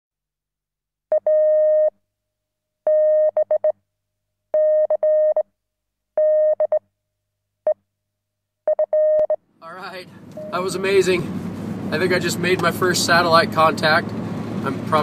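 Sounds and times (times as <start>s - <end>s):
morse code beeps: 1.1s - 1.9s, 2.9s - 3.8s, 4.6s - 5.4s, 6.2s - 6.8s, 8.7s - 9.4s, 10.4s - 10.6s.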